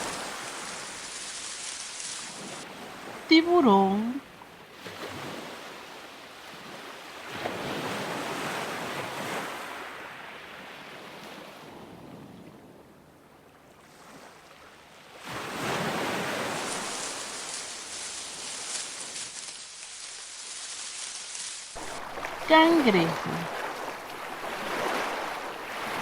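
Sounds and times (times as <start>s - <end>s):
ocean waves surging: 0.0s - 4.2s, 15.2s - 26.0s.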